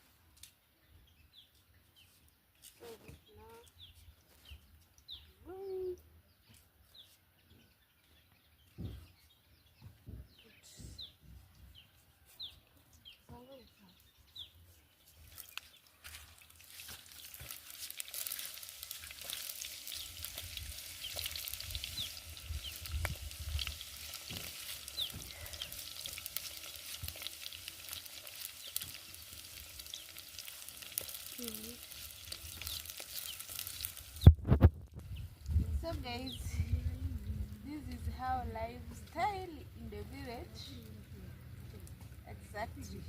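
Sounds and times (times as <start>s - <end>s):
food sizzling in hot oil: 15.3s - 35.9s.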